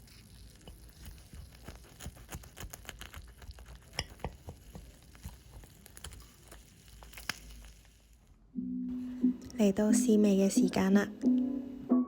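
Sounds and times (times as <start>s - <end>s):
crisp skin crackling: 0.0s - 8.2s.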